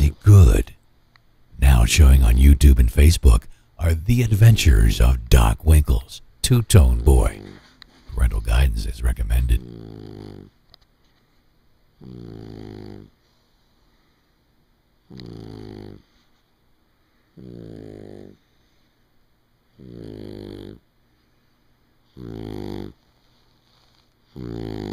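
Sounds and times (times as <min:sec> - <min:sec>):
quiet breaths: 0:01.6 - 0:24.9
dog snoring: 0:09.5 - 0:10.6, 0:12.0 - 0:13.2, 0:15.1 - 0:16.2, 0:17.4 - 0:18.5, 0:19.8 - 0:20.8, 0:22.1 - 0:23.0, 0:24.3 - 0:24.9.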